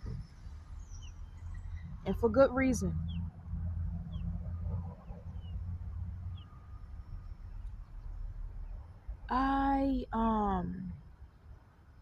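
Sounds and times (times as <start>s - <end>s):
faint bird chirps: 0.0s - 3.3s, 4.0s - 9.5s
low steady rumble: 0.0s - 12.0s.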